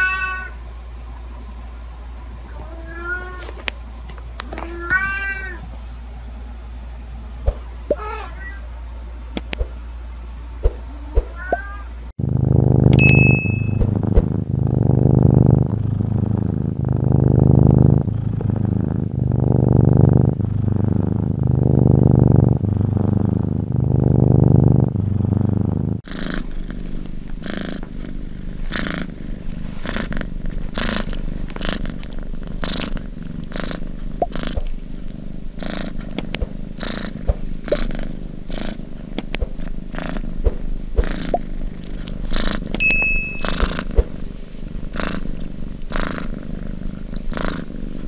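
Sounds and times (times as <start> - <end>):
cat purring: 12.2 - 48.0.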